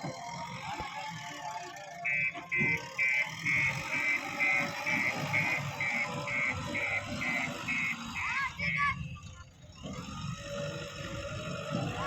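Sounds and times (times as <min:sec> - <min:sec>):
heavy machine engine running: 0:00.0 - 0:12.0
reversing alarm beeping: 0:01.9 - 0:09.1.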